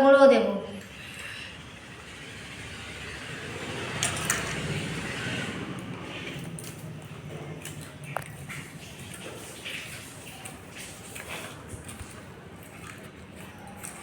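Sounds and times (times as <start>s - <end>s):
hands squishing prawns in a bowl: 6.0s - 14.0s.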